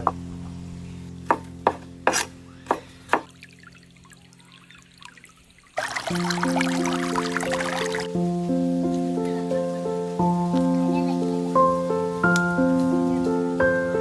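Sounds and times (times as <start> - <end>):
knife chopping on cutting board: 1.3 - 3.3
background music: 5.8 - 14.0.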